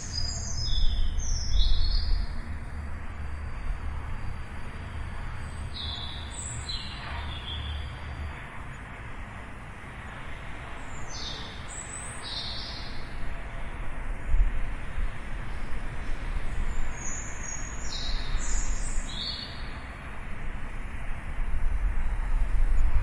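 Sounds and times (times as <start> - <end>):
small birds chirping: 0.0 - 2.5, 5.4 - 7.9, 10.7 - 13.1, 16.5 - 19.8
distant traffic rumble: 0.0 - 23.0.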